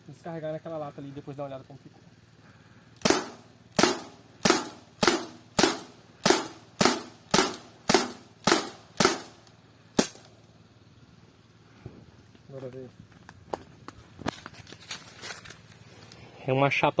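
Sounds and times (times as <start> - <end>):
air pistol shots: 3.0 - 10.3.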